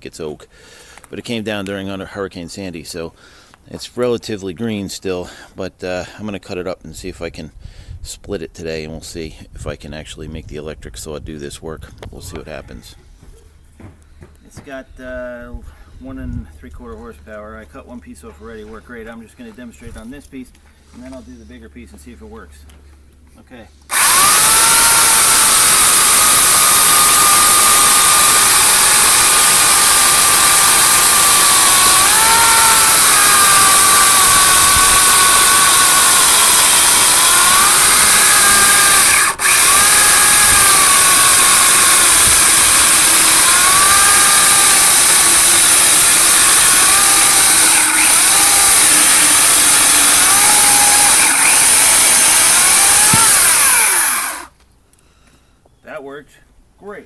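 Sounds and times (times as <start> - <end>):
electric chainsaw cutting log: 23.9 - 54.6.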